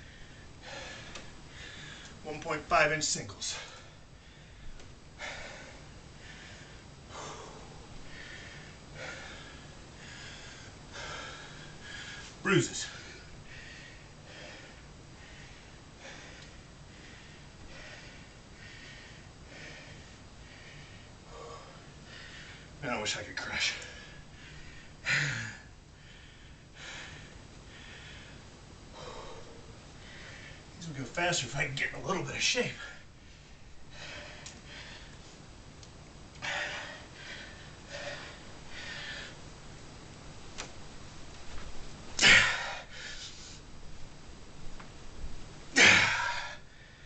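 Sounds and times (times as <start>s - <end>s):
man breathing hard: 0.0s - 2.2s, 3.5s - 22.8s, 23.6s - 30.8s, 32.8s - 35.3s, 36.3s - 39.5s, 42.2s - 43.7s, 45.8s - 47.0s
man grunting: 42.2s - 42.8s, 45.8s - 46.5s.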